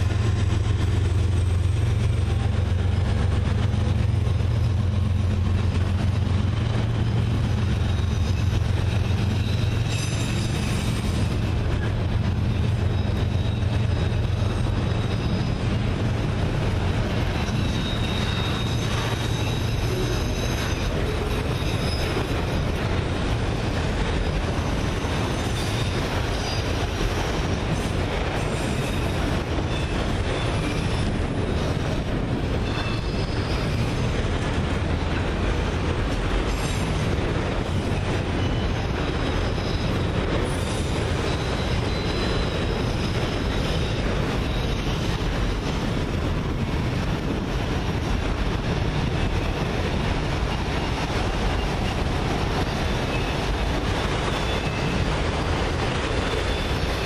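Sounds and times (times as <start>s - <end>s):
freight cars rumbling on rail: 0.0s - 57.0s
high-pitched wheel squeal: 7.7s - 11.3s, 12.5s - 15.8s, 17.4s - 22.8s, 32.6s - 34.0s, 38.4s - 45.1s.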